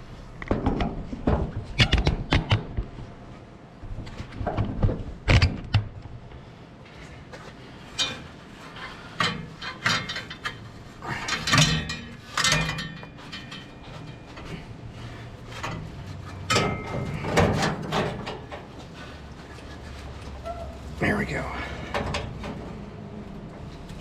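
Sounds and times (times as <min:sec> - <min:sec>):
metal tools clanking on engine: 0:07.9 - 0:22.8.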